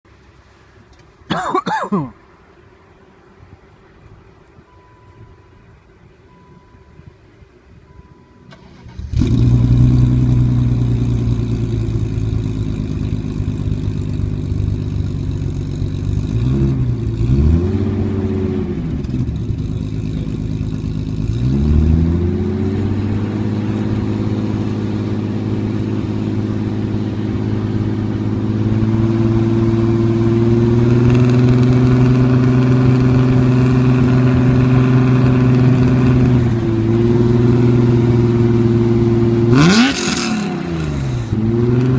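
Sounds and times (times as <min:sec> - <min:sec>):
car engine starting and idling: 0:00.1 - 0:41.9
engine revving: 0:08.5 - 0:41.9.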